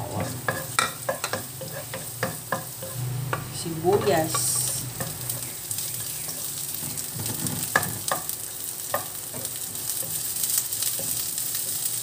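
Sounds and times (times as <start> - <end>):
garlic and onion sizzling in oil: 0.0 - 12.0
wooden spoon scraping a pan: 0.0 - 12.0.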